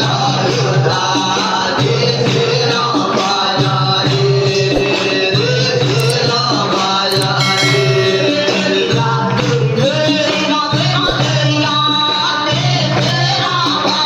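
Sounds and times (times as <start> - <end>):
instrumental backing with bass: 7.1 - 9.2.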